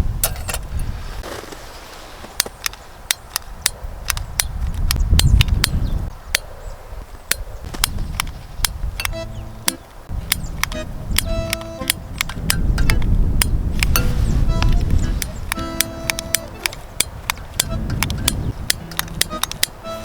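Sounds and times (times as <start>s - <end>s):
gusty wind on microphone: 0.0s - 20.0s
sharp clicks and knocks: 7.3s - 19.9s.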